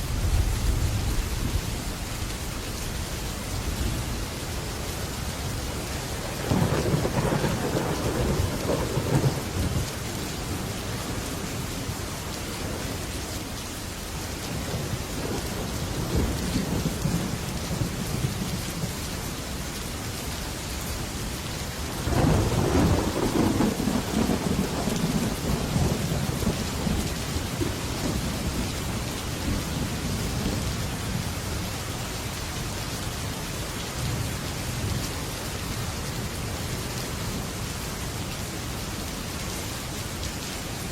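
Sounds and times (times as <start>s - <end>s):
heavy rain on a metal roof: 0.0s - 40.9s
thunder rumbling: 6.0s - 11.4s, 14.5s - 18.9s, 22.0s - 31.4s.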